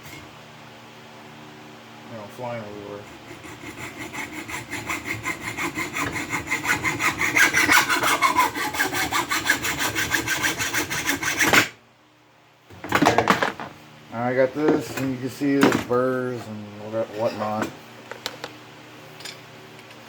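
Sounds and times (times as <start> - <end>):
saw cutting copper pipe: 2.6 - 11.8.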